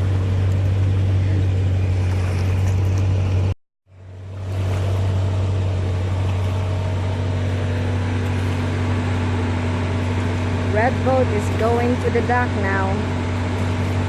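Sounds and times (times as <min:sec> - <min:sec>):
engine drone: 0:00.0 - 0:14.0.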